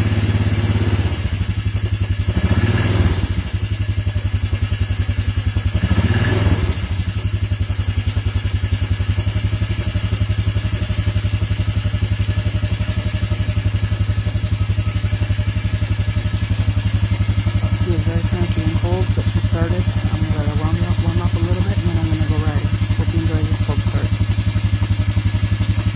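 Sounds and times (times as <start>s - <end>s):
engine idling cold: 0.0s - 25.9s.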